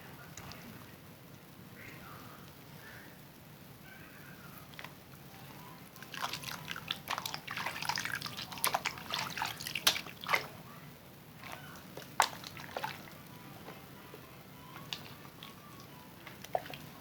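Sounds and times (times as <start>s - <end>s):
soap lathering in wet hands: 6.0s - 10.7s, 11.4s - 17.0s.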